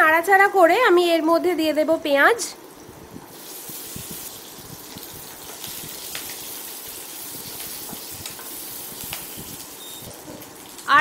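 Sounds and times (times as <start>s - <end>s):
onions sizzling in oil: 2.6s - 11.0s.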